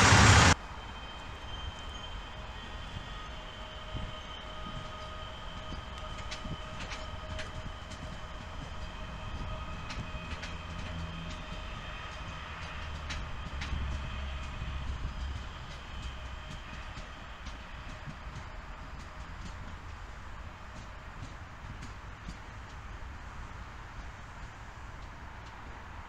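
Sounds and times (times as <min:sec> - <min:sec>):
steady whine: 0:00.0 - 0:07.0
low train rumble: 0:00.0 - 0:26.0
wheels clicking over rail joints: 0:04.0 - 0:26.0.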